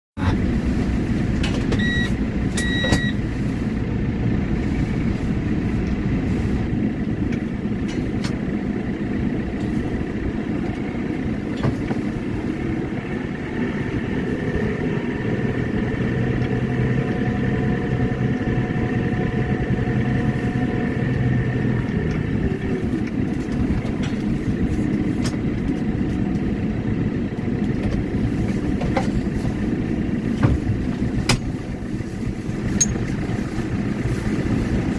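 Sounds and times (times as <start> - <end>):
tractor engine running: 0.2 - 34.9
short high beeps: 1.8 - 3.2.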